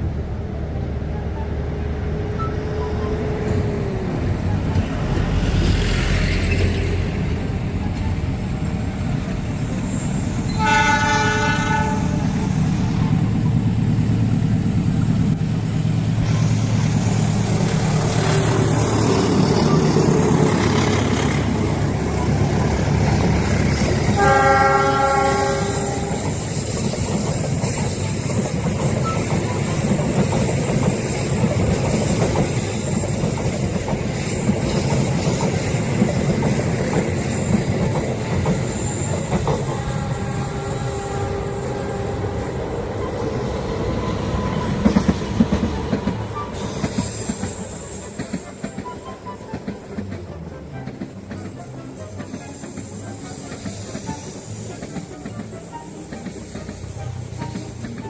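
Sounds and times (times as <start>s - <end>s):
train rumble and wheel clatter: 0.0s - 58.0s
train horn blasts: 10.4s - 12.7s, 23.9s - 26.5s, 39.4s - 43.2s.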